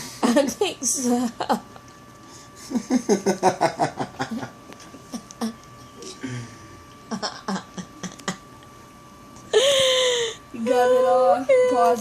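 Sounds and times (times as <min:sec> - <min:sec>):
person laughing: 0:02.7 - 0:04.6, 0:07.1 - 0:08.5.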